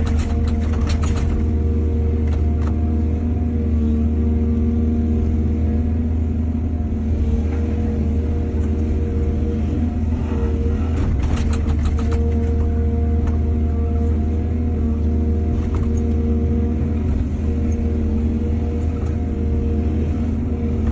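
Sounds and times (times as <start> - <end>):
rapid clanks and knocks: 0.0 - 1.6, 11.0 - 12.6
excavator diesel engine running: 0.0 - 20.9.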